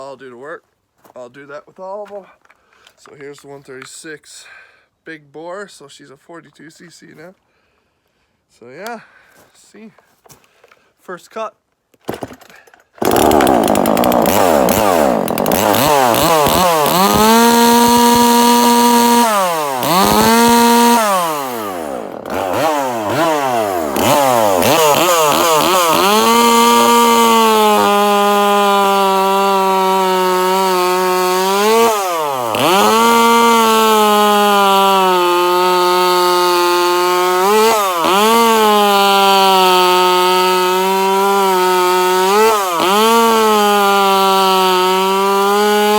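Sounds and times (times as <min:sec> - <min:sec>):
chainsaw cutting wood: 0:12.1 - 0:45.9.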